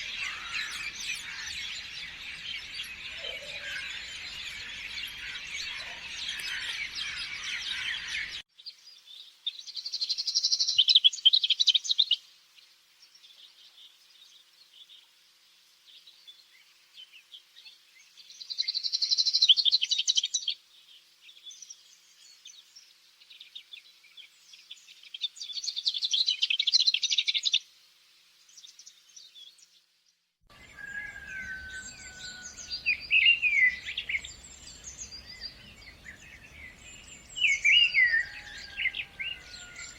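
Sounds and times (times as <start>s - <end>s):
faint bird twittering: 0.0s - 8.4s, 30.7s - 39.9s
birds singing: 0.0s - 12.2s, 30.5s - 39.9s
whistled gliding bird calls: 30.6s - 39.9s.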